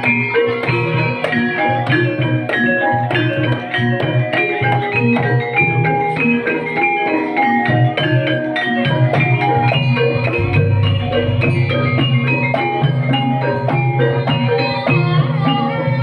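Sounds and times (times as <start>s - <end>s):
gamelan mallet instruments: 0.0s - 16.0s
low drum: 8.9s - 15.3s.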